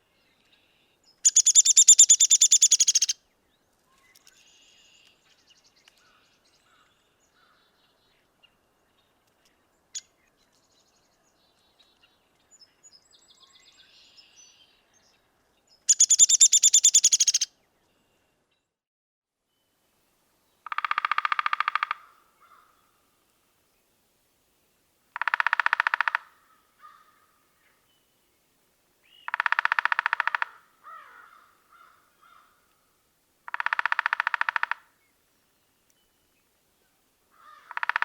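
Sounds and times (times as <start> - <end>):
short bird calls: 1.3 - 3.2, 15.9 - 17.5.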